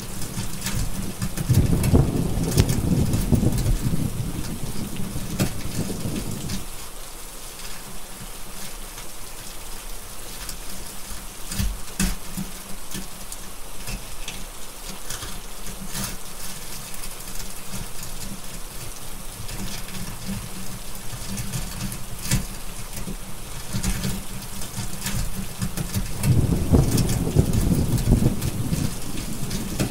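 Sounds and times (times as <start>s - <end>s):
steady rain: 0.0s - 29.9s
wood fire crackling: 0.0s - 29.9s
low thunder rumble: 0.8s - 6.7s, 26.0s - 29.9s.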